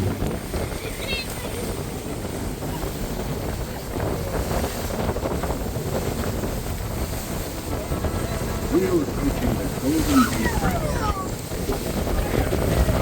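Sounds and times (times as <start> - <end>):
boat and water rumble: 0.0 - 13.0
wind buffeting microphone: 0.0 - 13.0.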